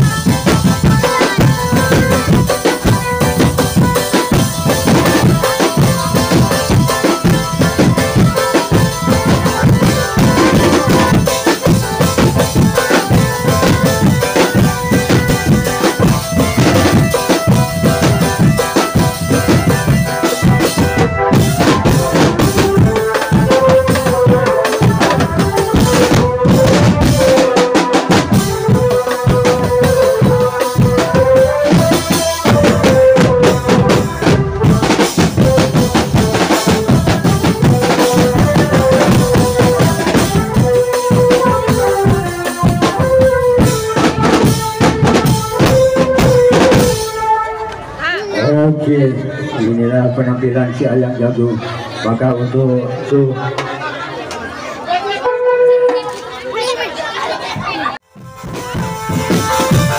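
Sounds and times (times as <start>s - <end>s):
wavering melody line: 0.0s - 48.6s
drums beating: 0.0s - 51.0s, 53.4s - 59.9s.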